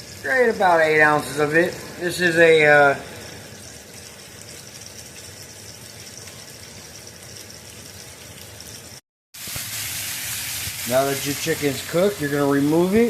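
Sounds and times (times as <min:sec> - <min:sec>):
steady hiss: 0:09.4 - 0:13.0.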